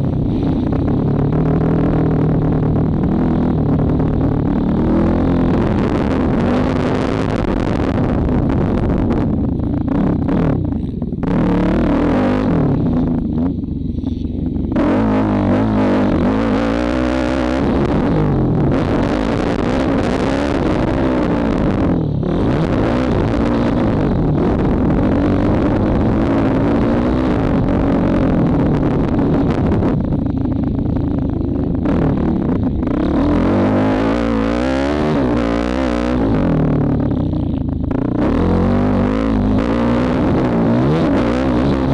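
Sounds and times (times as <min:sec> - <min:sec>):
motocross bike engine: 0:00.0 - 0:41.9.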